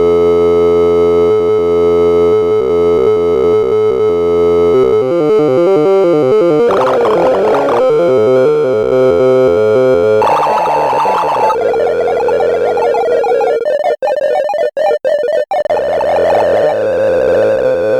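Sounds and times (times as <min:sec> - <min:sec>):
synthesized tones stepping in pitch: 0:06.3 - 0:08.9, 0:10.2 - 0:17.9.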